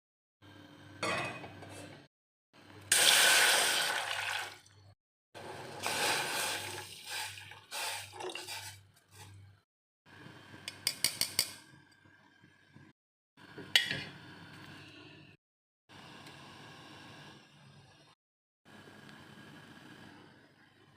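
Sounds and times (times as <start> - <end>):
glass and dishes clinking: 1.0 - 1.7.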